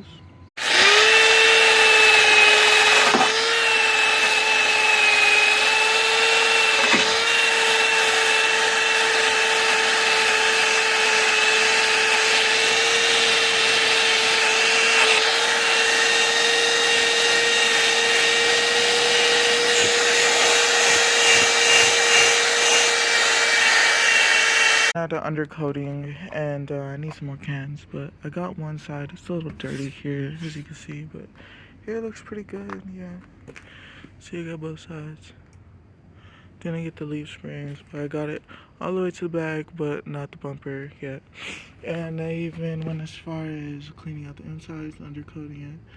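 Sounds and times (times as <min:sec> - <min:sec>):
power tool stripping paint: 0:00.6 - 0:25.0.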